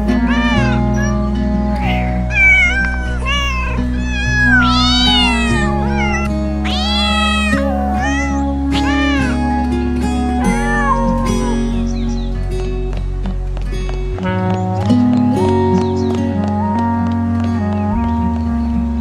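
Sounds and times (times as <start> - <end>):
background music: 0.0 - 19.0
cat meowing: 0.1 - 11.9.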